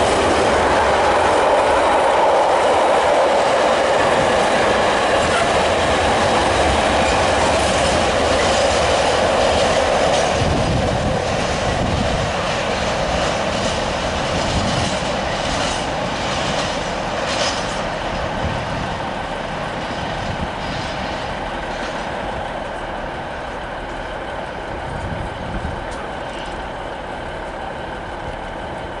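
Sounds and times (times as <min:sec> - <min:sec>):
freight train wheels rolling: 0:00.0 - 0:29.0.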